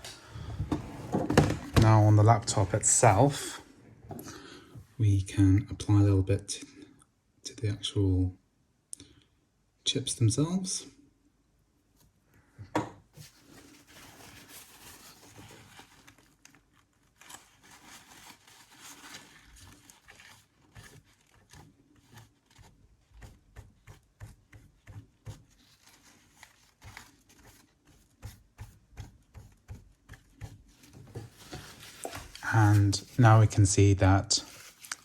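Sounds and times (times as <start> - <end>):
paper towel scrubbing chips: 13.2 - 35.0.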